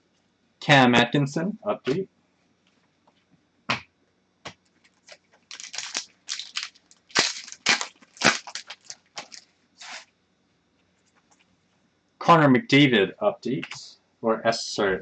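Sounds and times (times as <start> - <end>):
trading card packaging rustling: 4.9 - 10.0.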